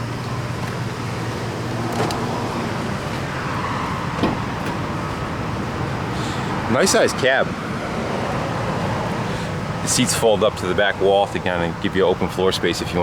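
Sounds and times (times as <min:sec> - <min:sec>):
truck engine idling: 0:00.0 - 0:13.0
truck door latch clicks: 0:01.8 - 0:02.3.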